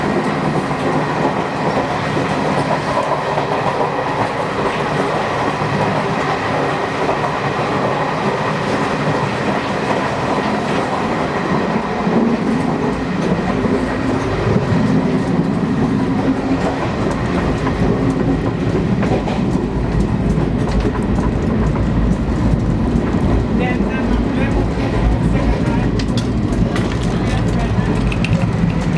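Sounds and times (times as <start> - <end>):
train wheels rumbling on rails: 0.0 - 28.9.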